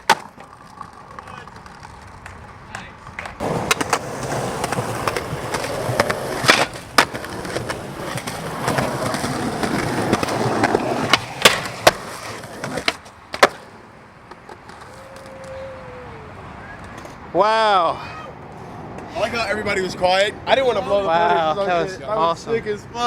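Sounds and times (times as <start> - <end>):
skateboard popping and landing clacks: 0.0 - 15.6
skateboard wheels rolling: 0.0 - 17.3.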